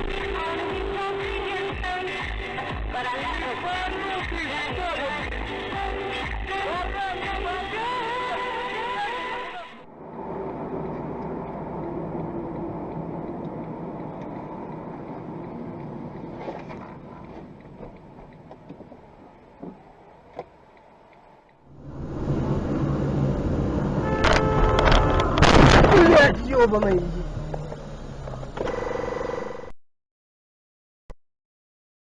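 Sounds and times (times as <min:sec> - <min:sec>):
music: 0:00.0 - 0:09.8
car driving road noise: 0:09.8 - 0:28.7
faint ticks: 0:10.8 - 0:18.8.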